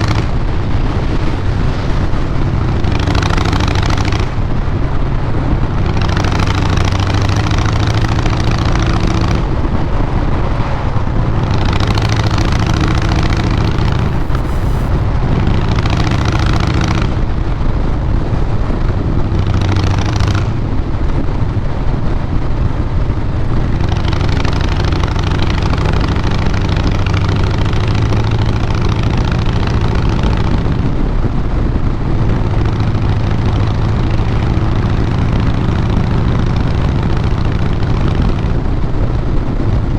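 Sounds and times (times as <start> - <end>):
motorcycle engine exhaust note: 0.0 - 21.8
hissing rush: 13.5 - 15.1.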